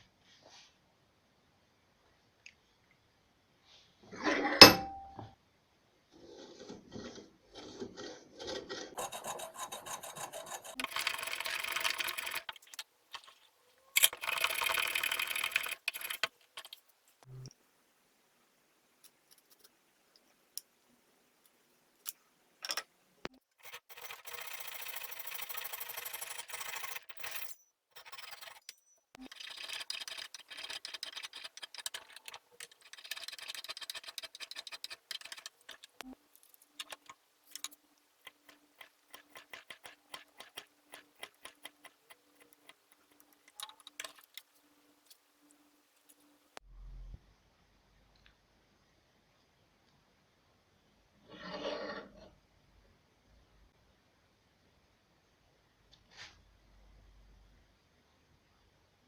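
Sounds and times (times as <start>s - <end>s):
rasp rubbing on wood: 6.3s - 12.6s, 29.3s - 36.0s, 36.8s - 44.4s.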